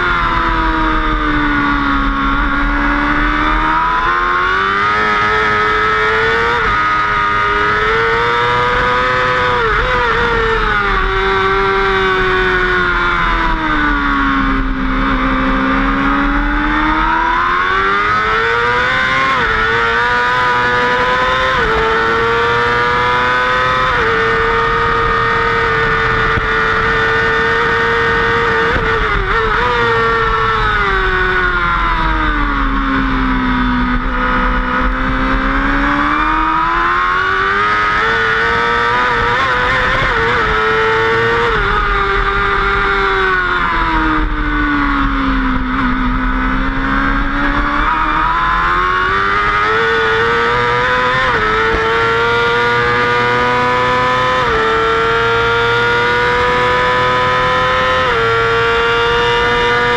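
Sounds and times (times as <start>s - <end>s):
racing motorcycle engine revving: 0.0s - 59.9s.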